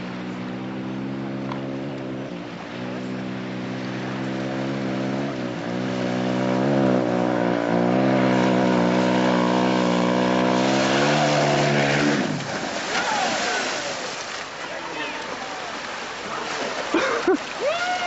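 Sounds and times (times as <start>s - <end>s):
dirt bike engine at high revs: 0.0s - 13.6s
rushing splashing noise: 0.0s - 18.0s.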